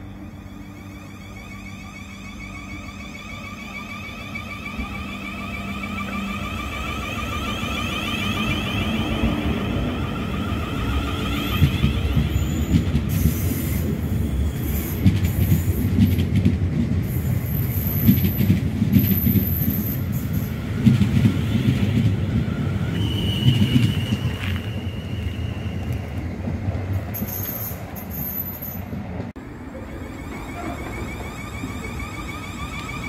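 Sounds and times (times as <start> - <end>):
train wheels rumbling on rail: 1.4 - 33.0
wheel squeal: 22.6 - 26.2, 29.9 - 33.0.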